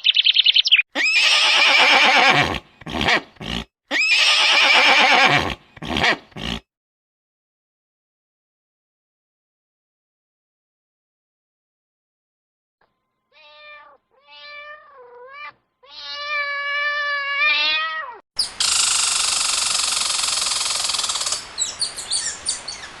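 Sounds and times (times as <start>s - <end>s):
cat meowing: 13.3s - 18.2s.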